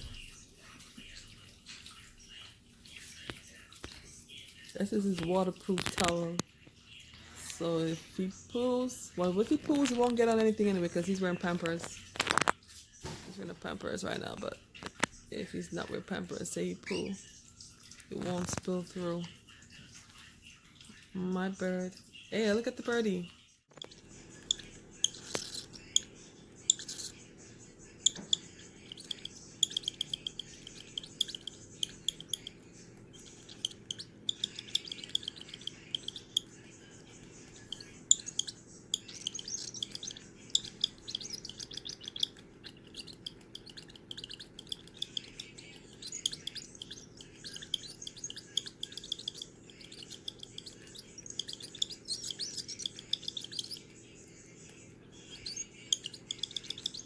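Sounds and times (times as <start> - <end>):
cockatiel chick chirping: 23.8 - 54.3, 55.2 - 57.0.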